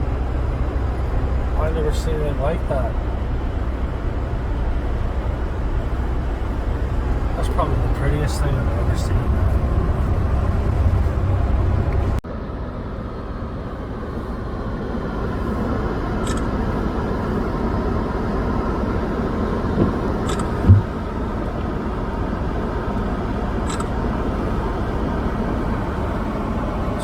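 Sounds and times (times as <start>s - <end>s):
car road and engine noise: 0.0s - 27.0s
short low thump: 19.8s - 21.0s.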